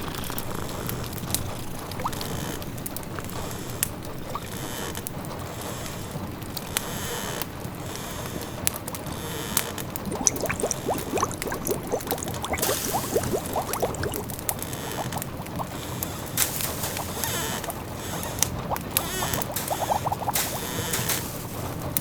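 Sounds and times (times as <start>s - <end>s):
pot bubbling: 10.0s - 21.8s
steady hiss: 11.8s - 14.3s, 16.4s - 17.9s, 18.9s - 21.8s
wood fire crackles: 15.2s - 22.0s.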